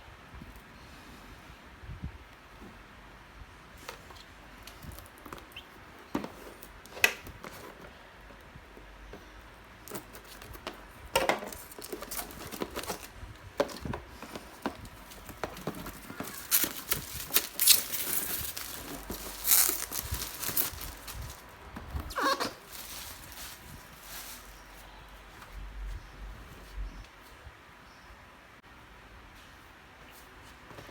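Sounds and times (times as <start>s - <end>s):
packaging rustling and crinkling: 9.8s - 24.9s.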